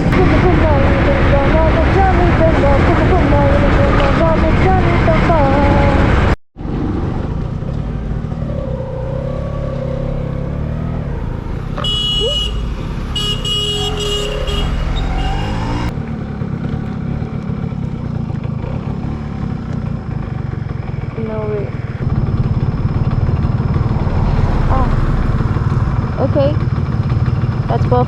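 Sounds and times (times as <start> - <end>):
two-stroke motorcycle engine: 0.0 - 28.0
vehicle horn: 11.7 - 15.9.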